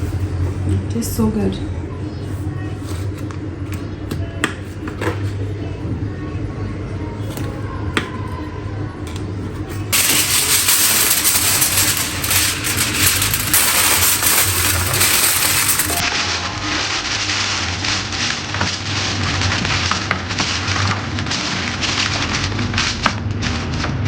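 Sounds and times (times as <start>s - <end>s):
kitchen hum: 6.9s - 16.0s
utensils clinking: 9.1s - 16.0s.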